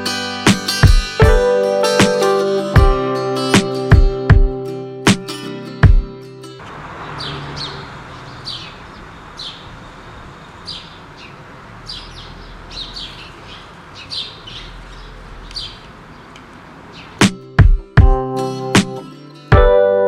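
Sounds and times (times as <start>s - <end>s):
guitar music: 0.0s - 6.7s, 17.2s - 20.0s
small bird chirping: 7.0s - 17.3s.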